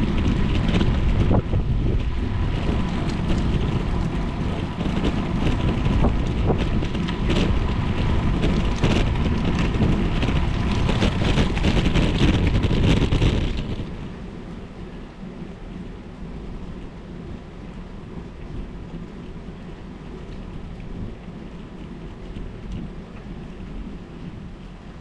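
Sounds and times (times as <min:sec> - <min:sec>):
rain: 0:00.0 - 0:25.0
wet road noise: 0:00.0 - 0:25.0
wind buffeting microphone: 0:00.0 - 0:25.0.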